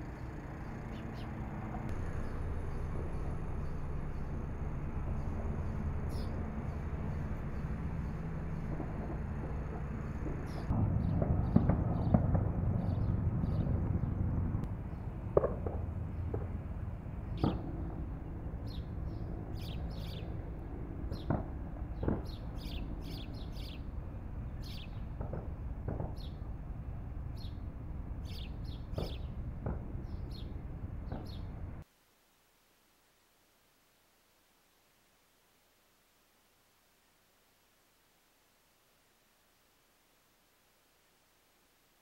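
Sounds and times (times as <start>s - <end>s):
small birds chirping: 0.0s - 4.3s, 5.6s - 8.2s, 17.3s - 20.4s, 21.1s - 23.9s, 24.5s - 25.1s, 27.3s - 27.6s, 28.2s - 29.4s, 30.0s - 31.7s
low outdoor rumble: 0.0s - 31.8s.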